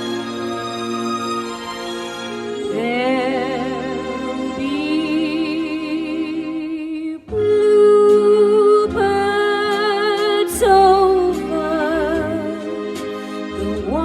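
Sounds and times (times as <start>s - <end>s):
vocal group singing in harmony: 2.6s - 6.6s.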